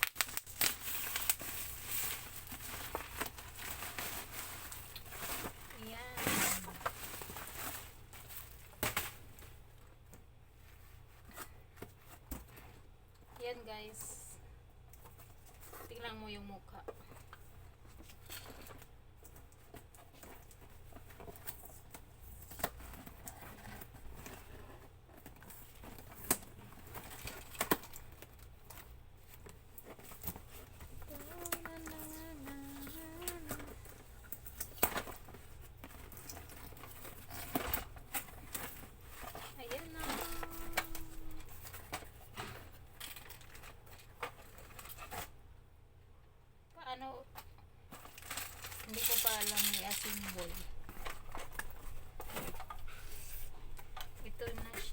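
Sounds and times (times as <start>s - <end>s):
packaging crinkling: 0.0s - 9.6s, 18.1s - 45.3s, 47.9s - 54.9s
plastic toy parts clicking: 49.0s - 50.6s.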